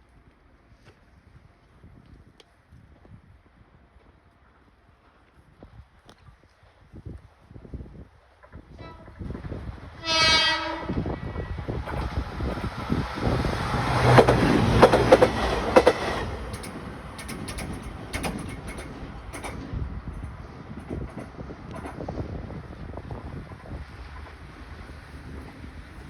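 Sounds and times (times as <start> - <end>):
short train horn blast: 8.7 - 9.2, 10.0 - 11.2
train wheels clacking: 11.6 - 25.7.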